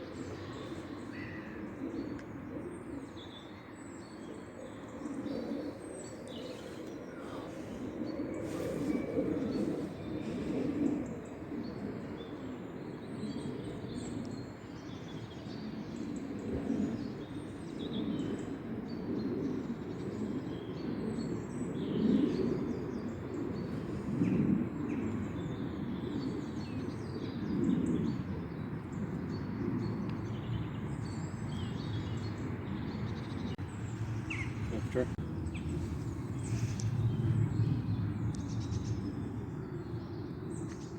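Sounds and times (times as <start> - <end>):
small birds chirping: 29.3 - 40.9.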